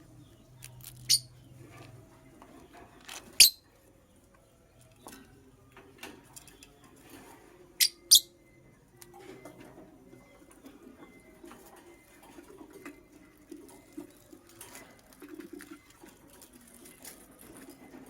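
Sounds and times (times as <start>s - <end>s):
lovebird chirping: 0.0s - 1.6s, 2.6s - 4.8s, 7.8s - 8.8s.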